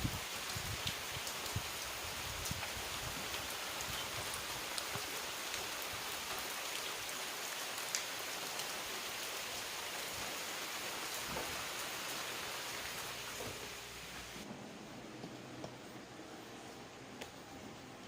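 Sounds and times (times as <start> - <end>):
steady rain hissing: 0.0 - 18.0.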